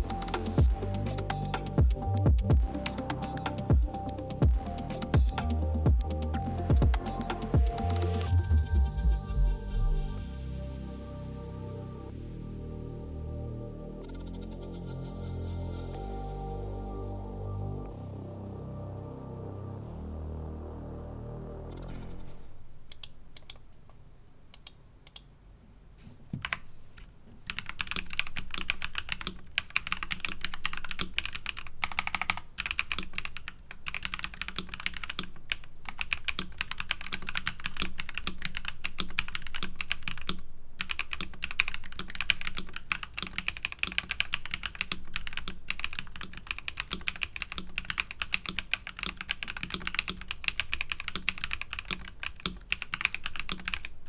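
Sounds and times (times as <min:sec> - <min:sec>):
mechanical keyboard typing: 0:21.9 - 0:23.7, 0:26.4 - 0:26.7, 0:27.5 - 0:53.9.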